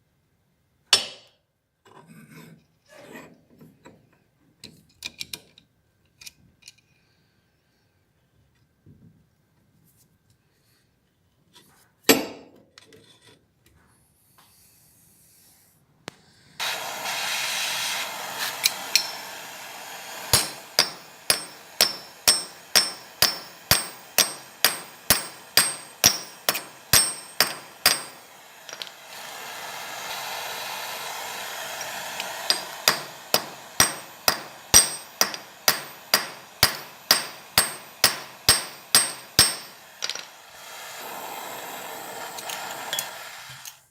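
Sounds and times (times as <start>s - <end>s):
hammer striking metal: 0.9s - 1.3s, 18.7s - 19.2s, 20.3s - 28.9s, 32.5s - 40.4s
steady hiss: 14.4s - 43.9s.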